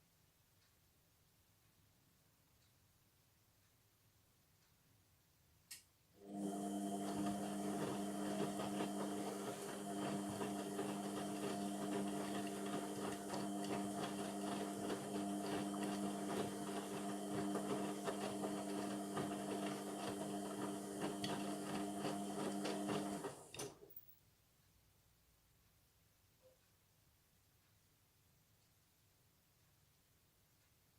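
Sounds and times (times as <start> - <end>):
washing machine humming: 6.2 - 23.9.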